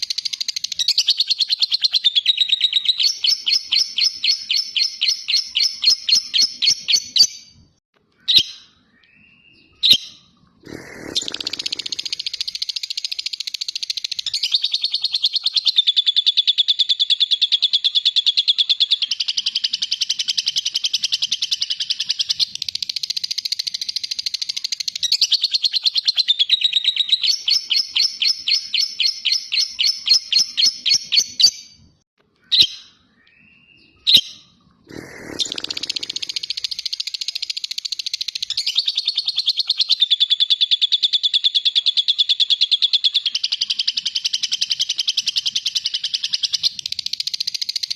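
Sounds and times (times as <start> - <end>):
bird chirps: 0.0 - 47.9
bird chattering trill: 10.6 - 31.5, 34.9 - 47.9.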